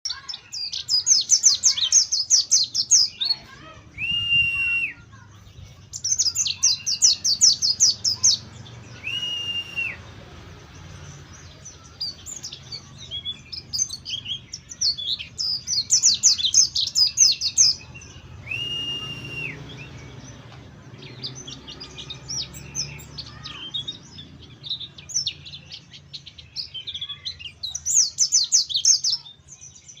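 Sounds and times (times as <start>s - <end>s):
bird chirps: 0.1s - 30.0s
bird twittering song: 0.1s - 30.0s
long level whistles: 3.9s - 5.1s, 8.8s - 10.1s, 18.4s - 20.0s.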